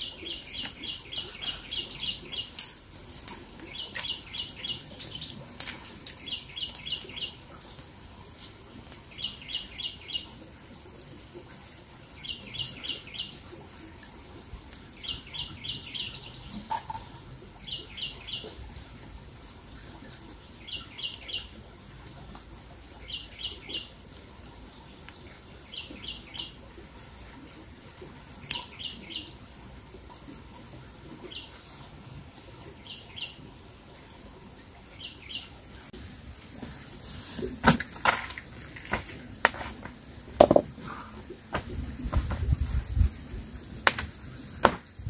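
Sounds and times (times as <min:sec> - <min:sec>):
sharp knocks and crackles: 0:37.4 - 0:40.8, 0:43.8 - 0:45.0.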